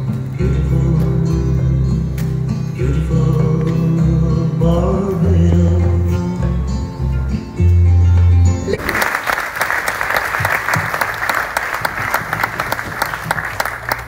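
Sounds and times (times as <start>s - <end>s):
audience applause: 8.7s - 14.0s.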